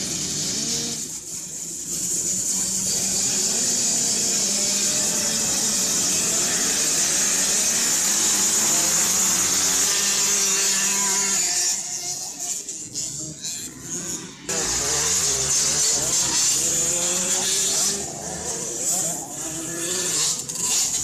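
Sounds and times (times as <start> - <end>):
two-stroke motocross bikes buzzing: 0.0 - 21.0.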